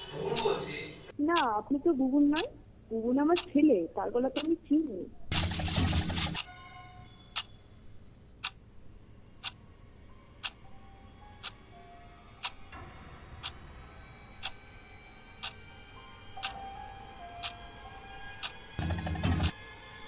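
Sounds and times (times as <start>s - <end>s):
clock ticking: 0.0s - 1.6s, 3.3s - 3.6s, 4.2s - 4.9s, 8.4s - 8.6s, 14.4s - 14.6s
faint music drone: 6.4s - 20.0s.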